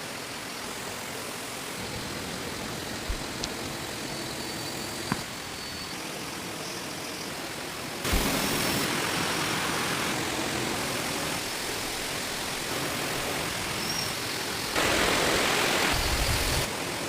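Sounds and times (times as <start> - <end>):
heavy rain: 7.4 - 17.0.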